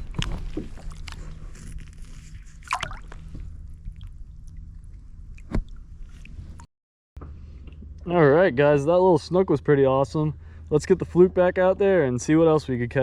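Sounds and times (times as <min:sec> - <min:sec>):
water sloshing and splashing: 0:00.0 - 0:06.7.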